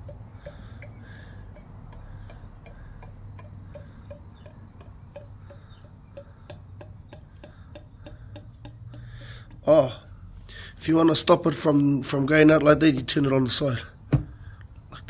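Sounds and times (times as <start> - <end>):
faint regular ticking: 0.0 - 10.5
low steady hum: 0.0 - 12.3.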